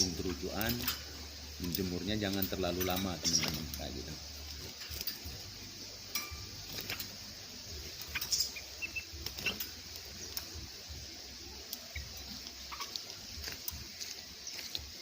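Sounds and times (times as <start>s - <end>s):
high bird chirps: 0.0s - 15.0s
bird tapping in metal cage: 6.1s - 7.2s, 7.8s - 10.7s.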